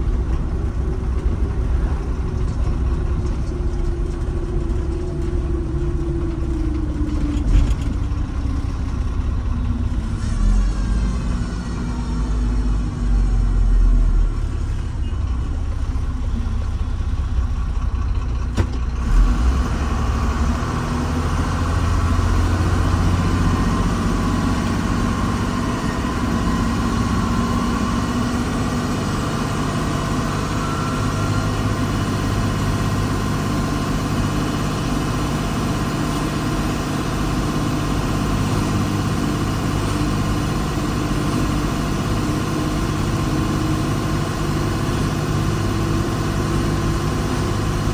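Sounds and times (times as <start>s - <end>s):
heavy diesel engine running: 0.0s - 47.9s.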